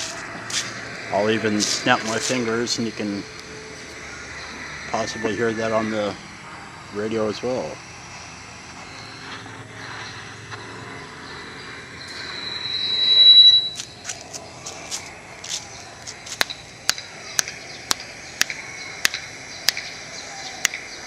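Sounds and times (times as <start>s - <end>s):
high whistling tone: 0.0s - 14.1s.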